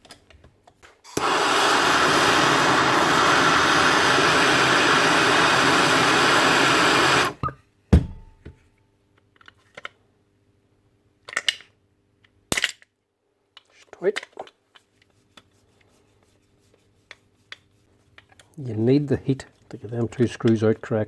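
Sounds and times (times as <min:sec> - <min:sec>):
heat gun blowing: 0:01.1 - 0:07.4.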